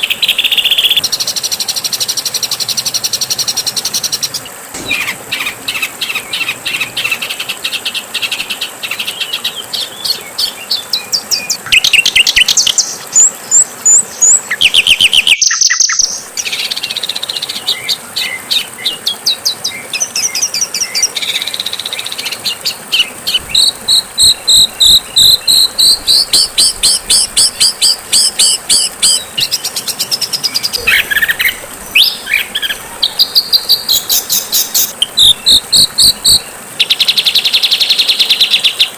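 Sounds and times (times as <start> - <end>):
songbird chirps and trills: 0.0 - 38.9
steady high hiss: 0.0 - 38.9.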